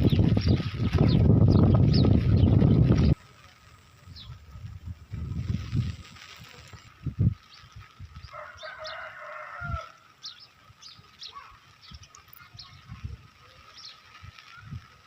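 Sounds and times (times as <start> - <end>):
small birds chirping: 0.0 - 15.0
rooster crowing: 8.3 - 10.0.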